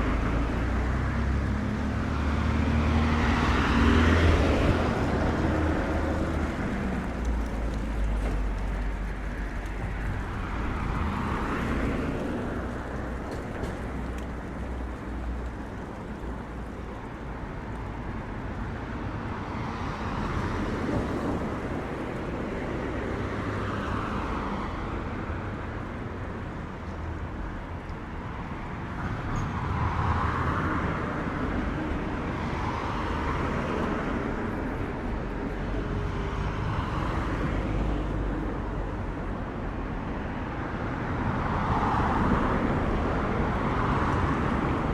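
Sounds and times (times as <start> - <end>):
cars driving past: 0.0 - 27.7
low traffic rumble: 0.0 - 44.9.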